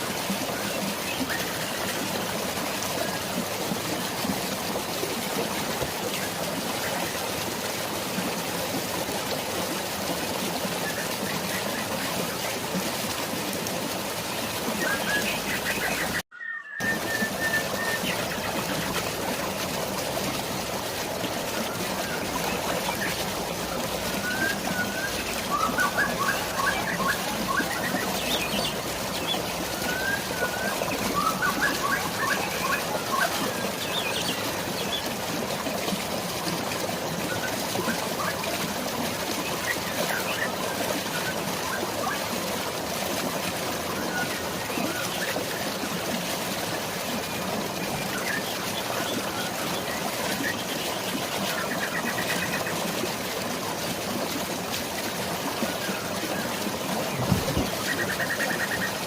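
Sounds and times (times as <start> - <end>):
rushing flowing water: 0.0 - 59.0
birds chirping: 14.5 - 19.1, 21.9 - 35.1, 56.4 - 59.0.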